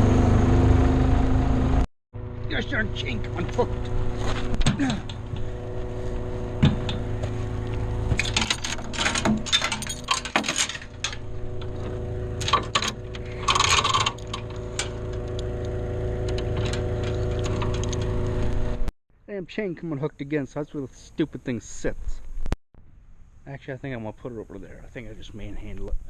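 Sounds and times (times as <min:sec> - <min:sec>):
engine idling: 0:00.0 - 0:18.9
metal chain clinking and rattling: 0:08.2 - 0:11.3.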